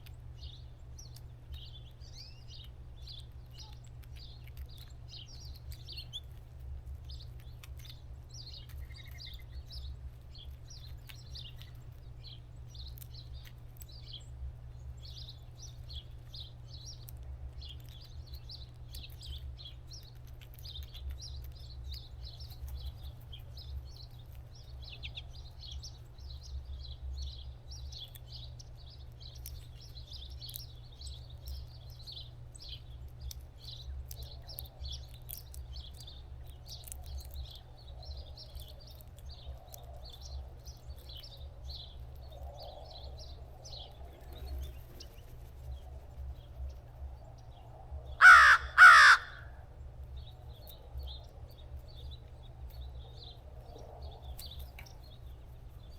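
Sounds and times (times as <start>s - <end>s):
small birds twittering: 0.0s - 55.9s
crow cawing: 48.2s - 49.6s.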